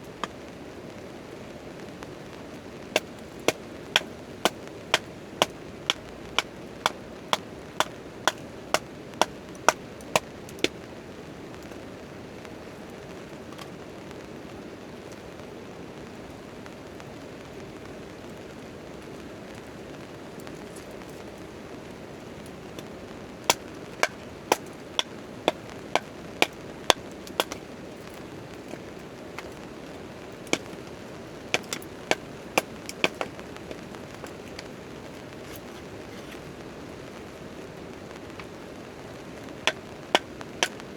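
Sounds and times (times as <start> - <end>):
rain on a tent tarp: 0.0 - 40.9
sharp evenly spaced knocks: 3.0 - 10.7, 23.5 - 27.7, 31.5 - 34.6.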